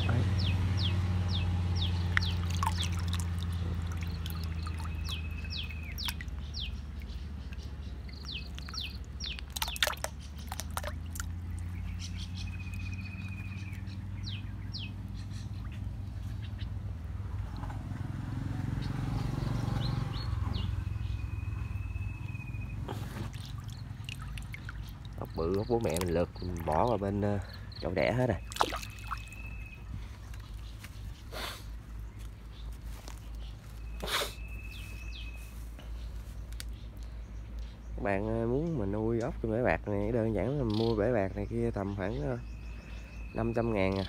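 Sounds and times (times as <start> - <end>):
birds chirping: 0.0 - 44.0
buzzy bird trill: 4.0 - 16.7, 19.8 - 31.3.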